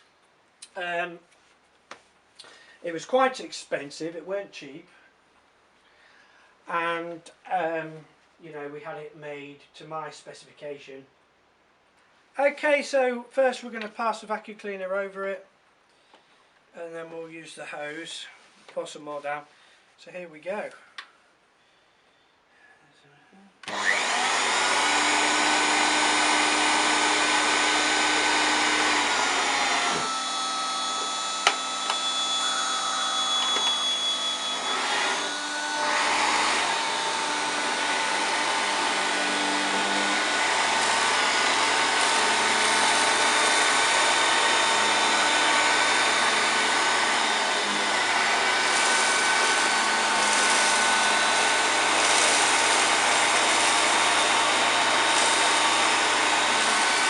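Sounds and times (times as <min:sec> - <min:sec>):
vacuum cleaner running: 0:23.7 - 0:57.0.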